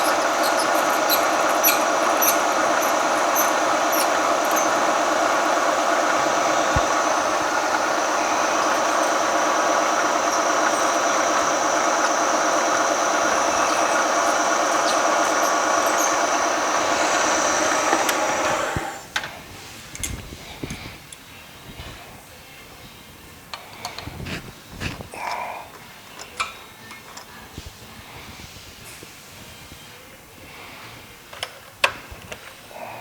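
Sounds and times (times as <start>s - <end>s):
milling machine cutting steel: 0.0s - 19.1s.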